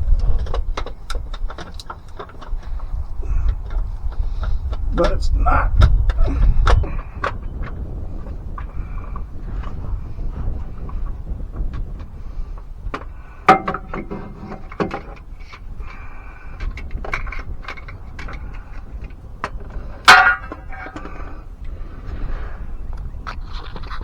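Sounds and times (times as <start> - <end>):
metal clanking and knocking: 12.9 - 21.4
loud ringing clanks: 13.4 - 15.2, 19.5 - 21.4.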